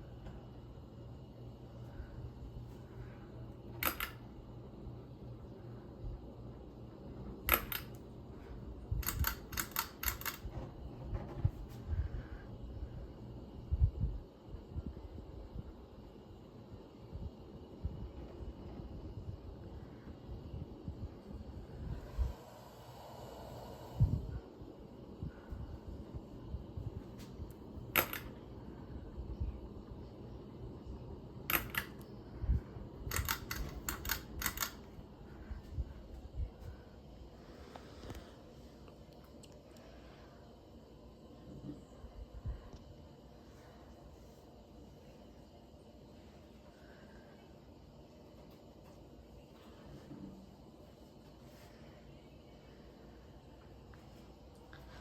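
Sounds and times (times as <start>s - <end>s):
ceiling fan humming: 0.0s - 55.0s
sharp clicks: 3.8s - 4.2s, 9.0s - 10.5s, 33.1s - 34.8s.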